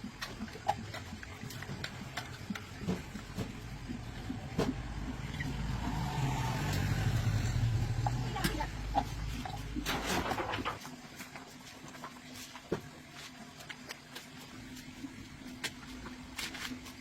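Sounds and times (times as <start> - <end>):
engine running: 0.8 - 10.8.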